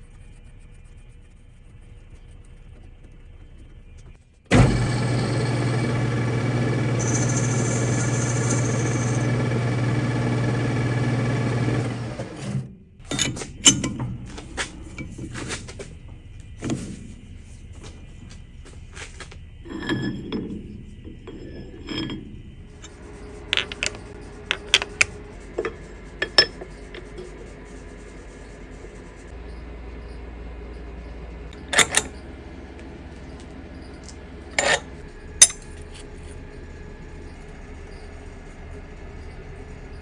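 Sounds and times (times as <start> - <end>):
machine hum: 3.6 - 40.0
metal tools clinking: 19.6 - 27.2, 31.7 - 32.1, 34.6 - 35.9.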